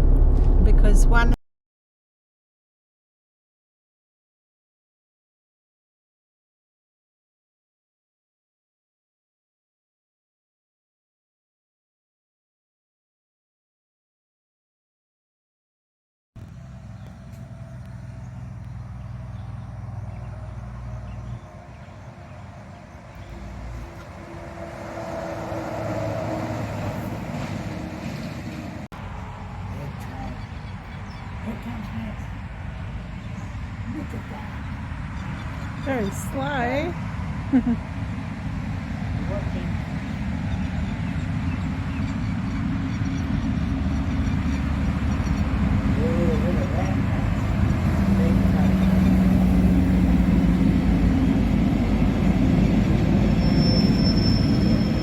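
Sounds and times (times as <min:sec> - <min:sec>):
vehicle engine running: 0:00.0 - 0:01.4, 0:16.4 - 0:24.6, 0:29.0 - 0:53.3.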